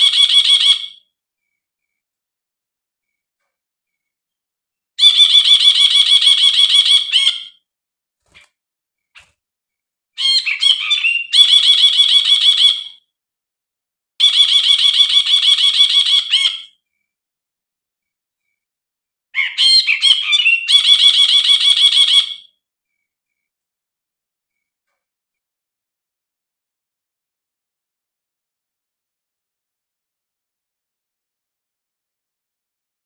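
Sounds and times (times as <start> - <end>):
bird chirps: 0.0 - 2.2, 5.0 - 9.4, 10.2 - 13.1, 14.2 - 17.2, 19.4 - 23.6.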